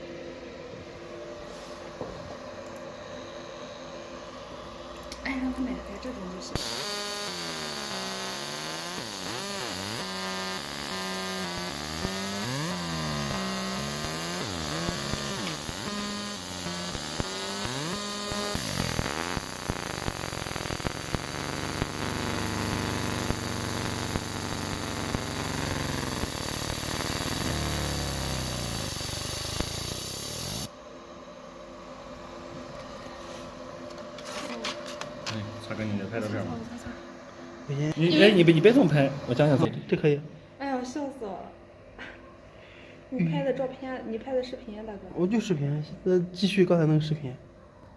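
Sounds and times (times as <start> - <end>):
laser marking machine whine: 5.6 - 30.8.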